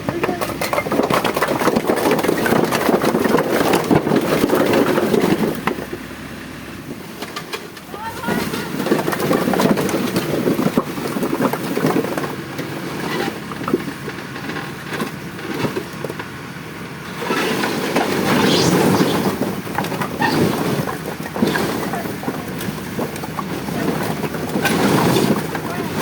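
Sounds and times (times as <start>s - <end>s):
tractor diesel engine running: 0.0s - 26.0s
wind noise on microphone: 17.4s - 21.8s.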